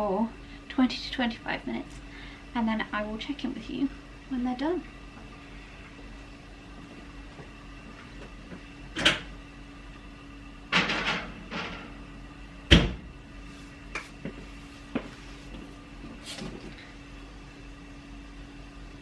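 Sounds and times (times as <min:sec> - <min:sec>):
steady low hum: 0:00.0 - 0:19.0
oven door shutting: 0:08.9 - 0:09.4, 0:10.7 - 0:12.0, 0:12.7 - 0:13.1.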